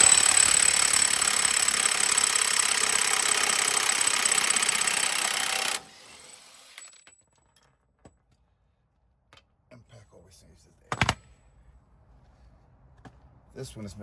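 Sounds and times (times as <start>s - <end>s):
impact wrench hammering: 0.0s - 5.9s.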